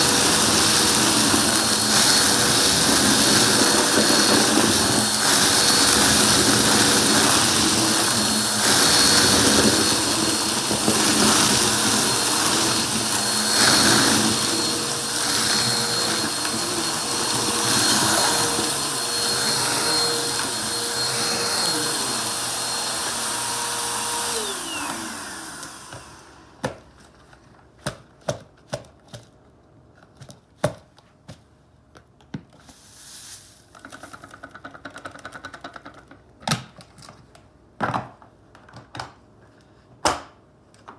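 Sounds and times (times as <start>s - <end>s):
vacuum cleaner motor whining: 0.0s - 27.0s.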